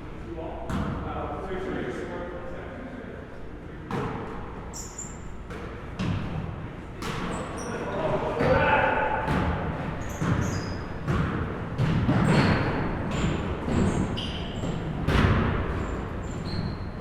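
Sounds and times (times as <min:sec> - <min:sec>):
short high squeaks: 0:04.7 - 0:05.3, 0:10.0 - 0:10.9, 0:13.9 - 0:14.8, 0:16.2 - 0:17.0
basketball bouncing on gym floor: 0:08.4 - 0:17.0.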